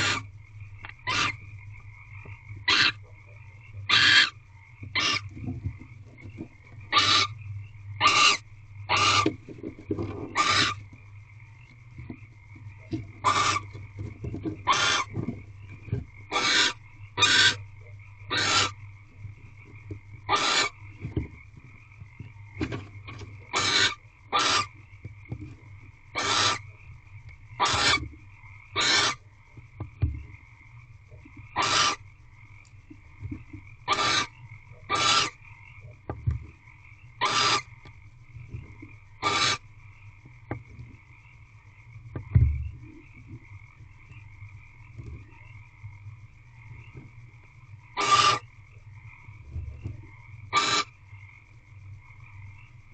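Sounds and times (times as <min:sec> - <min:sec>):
barn owl hissing calls: 0:00.0 - 0:00.3, 0:01.0 - 0:01.4, 0:02.6 - 0:03.0, 0:03.9 - 0:05.3, 0:06.9 - 0:07.4, 0:08.0 - 0:09.4, 0:10.3 - 0:10.9, 0:13.2 - 0:13.8, 0:14.7 - 0:15.2, 0:16.3 - 0:17.7, 0:18.3 - 0:18.8, 0:20.3 - 0:20.9, 0:23.5 - 0:24.8, 0:26.1 - 0:26.7, 0:27.6 - 0:28.1, 0:28.8 - 0:29.3, 0:31.5 - 0:32.0, 0:33.9 - 0:35.4, 0:37.2 - 0:37.7, 0:39.2 - 0:39.6, 0:48.0 - 0:48.5, 0:50.5 - 0:50.9
frogs chorus: 0:00.0 - 0:52.9
dull low thumps: 0:39.9 - 0:47.8.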